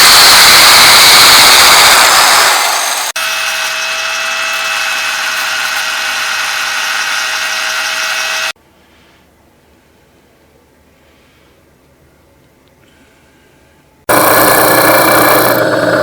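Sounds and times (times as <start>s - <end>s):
electric drill whining: 0.0s - 8.6s, 14.1s - 16.0s
woodworking power tool: 0.0s - 8.6s, 14.1s - 16.0s.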